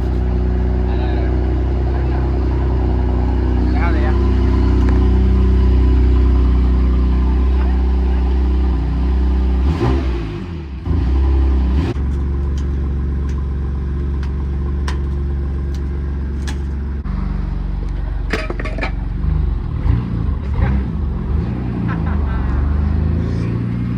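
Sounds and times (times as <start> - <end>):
car engine idling: 0.0 - 23.9.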